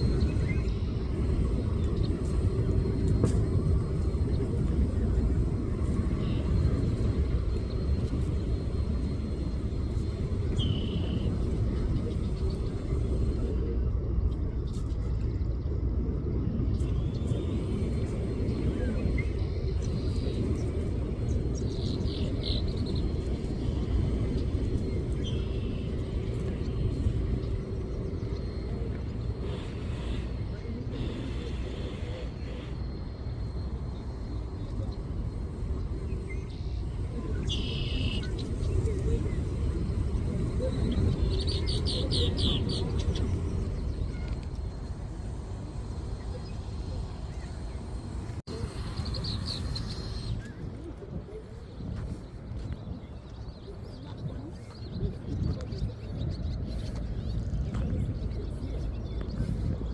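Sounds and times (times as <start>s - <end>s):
faint voices: 0.0s - 59.9s
wind rumble on microphone: 0.0s - 59.9s.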